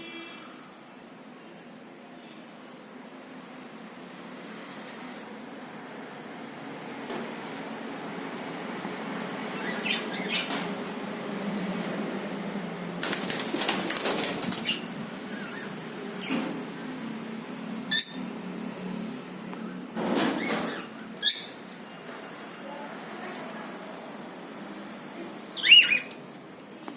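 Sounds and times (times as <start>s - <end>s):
birds flapping wings: 13.0s - 14.8s
high-pitched cockatiel calls: 25.6s - 26.1s.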